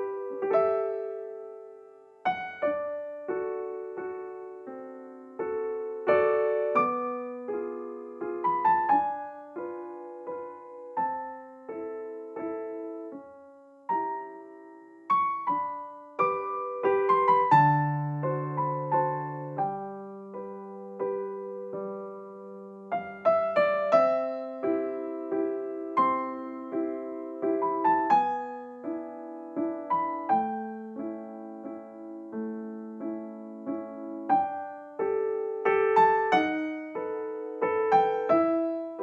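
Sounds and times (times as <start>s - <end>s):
slow piano music: 0.0s - 39.0s.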